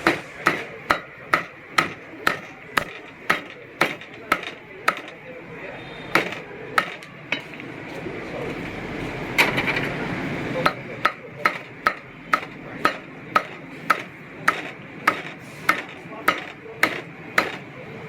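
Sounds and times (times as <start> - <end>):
cleaver chopping meat on wood: 0.1 - 5.2, 6.1 - 7.5, 10.6 - 17.7.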